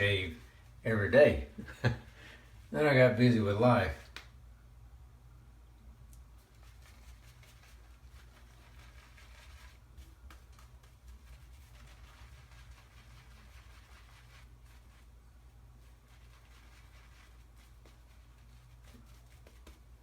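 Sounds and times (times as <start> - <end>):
low steady hum: 0.0 - 20.0
shaving brush lathering soap: 6.4 - 20.0.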